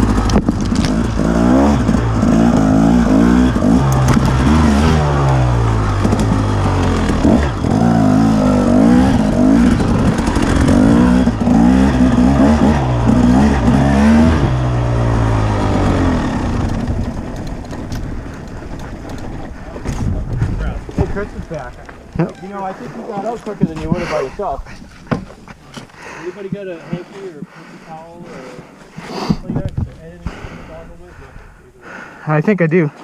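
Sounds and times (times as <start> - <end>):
dirt bike engine revving: 0.0 - 24.8.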